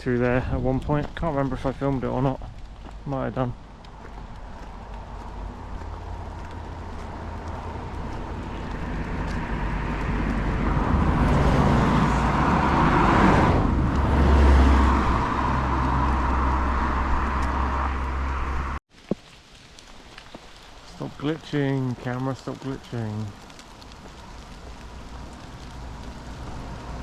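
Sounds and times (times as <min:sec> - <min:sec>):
motor vehicle passing: 0:03.7 - 0:18.8, 0:23.8 - 0:27.0.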